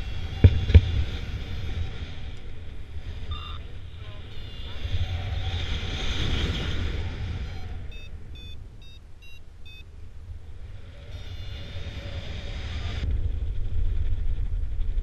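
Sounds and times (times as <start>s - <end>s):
wind buffeting microphone: 0.0s - 15.0s
variometer beeps: 3.3s - 4.4s, 7.9s - 9.9s.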